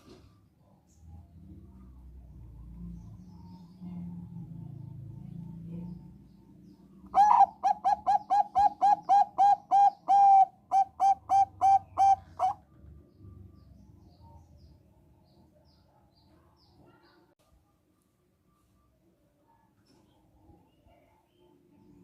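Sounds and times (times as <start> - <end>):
dove cooing: 7.1 - 12.6.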